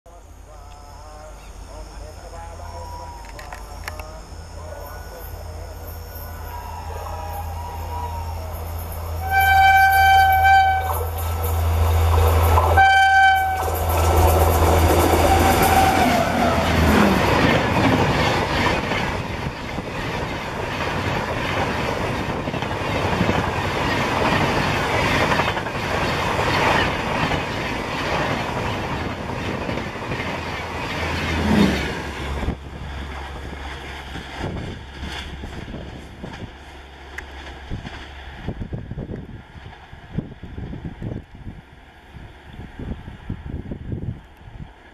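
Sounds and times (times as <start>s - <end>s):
low running hum: 0.1s - 24.8s, 27.2s - 43.0s
train passing with wheel clatter: 1.7s - 44.9s
train horn blasts: 4.7s - 17.5s.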